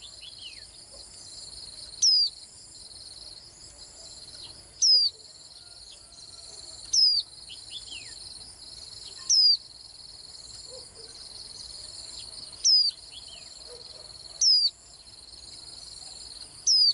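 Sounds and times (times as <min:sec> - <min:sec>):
crickets trilling: 0:00.0 - 0:16.9
bird giving high downward calls: 0:04.8 - 0:05.2, 0:06.8 - 0:08.1, 0:09.1 - 0:09.6, 0:16.7 - 0:16.9.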